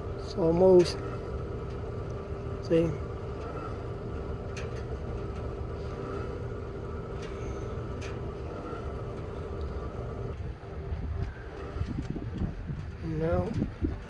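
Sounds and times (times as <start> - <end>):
fuel pump humming: 0.0 - 14.0
faint ticks: 4.5 - 10.0.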